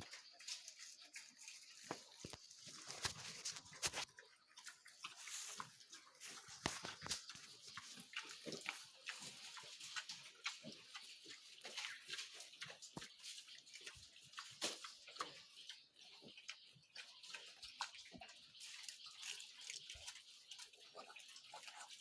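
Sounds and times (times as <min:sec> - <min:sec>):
pigs chewing and smacking: 0:00.0 - 0:22.0.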